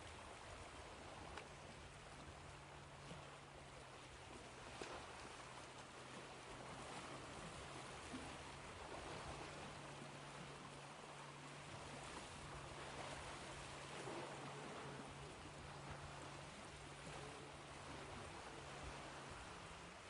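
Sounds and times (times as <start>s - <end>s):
ocean waves surf hiss: 6.2s - 20.0s.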